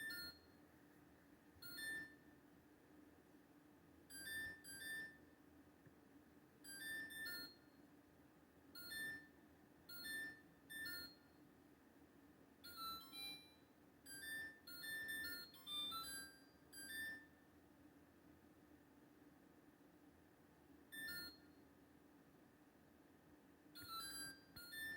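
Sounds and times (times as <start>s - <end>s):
refrigerator electronic chimes: 0.0s - 0.6s, 1.6s - 2.2s, 4.1s - 5.2s, 6.6s - 7.8s, 8.8s - 11.4s, 12.6s - 17.3s, 20.9s - 21.6s, 23.8s - 24.9s.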